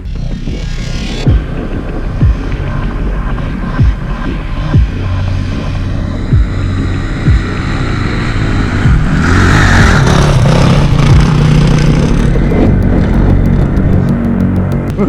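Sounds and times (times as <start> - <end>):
dirt bike engine revving hard: 5.6 - 14.4.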